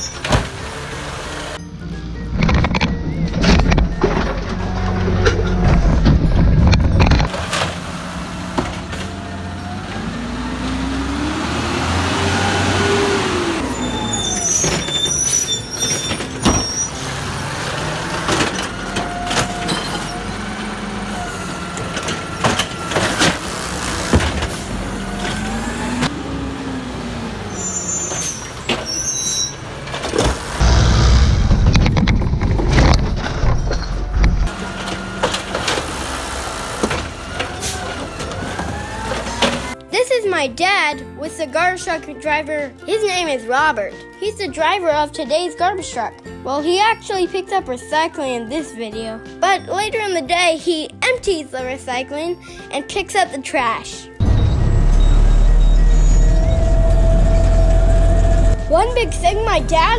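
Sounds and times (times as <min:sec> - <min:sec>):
garbage truck engine revving: 0:00.0 - 0:39.9, 0:54.2 - 0:59.9
heavy low rumble: 0:02.2 - 0:07.3, 0:30.6 - 0:34.5
knocks and clanks: 0:02.3 - 0:07.8, 0:21.7 - 0:25.5, 0:29.8 - 0:36.0.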